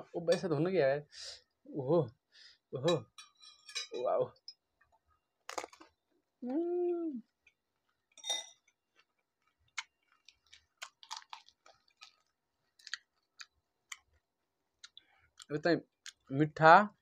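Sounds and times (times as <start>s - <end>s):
metal spoon clinking on glass bowl: 2.8s - 4.6s, 8.2s - 8.7s
crisp shells crunching: 5.5s - 5.9s, 9.5s - 13.3s.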